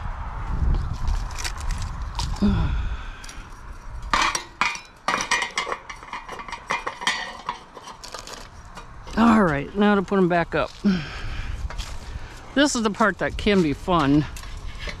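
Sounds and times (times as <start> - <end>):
feeder parts clinking and rattling: 3.2 - 9.2.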